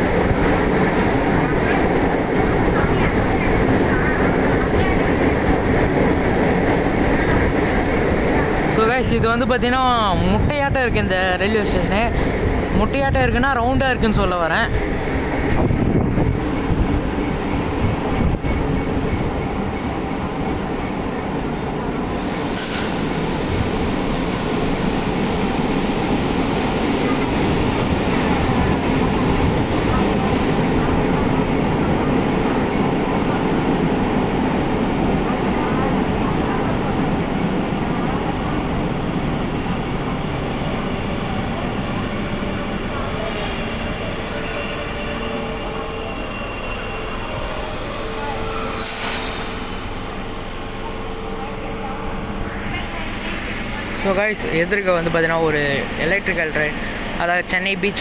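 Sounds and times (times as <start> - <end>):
train rumble and rail noise: 0.0 - 58.0.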